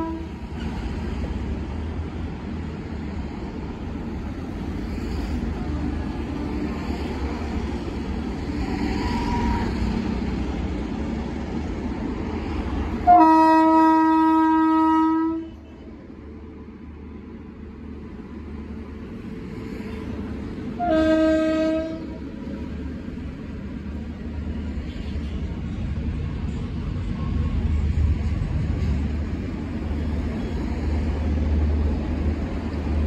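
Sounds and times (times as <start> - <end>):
train horn blast: 0.0 - 0.4, 9.0 - 9.8, 13.0 - 15.8, 20.8 - 22.2
train rumbling past: 0.0 - 33.0.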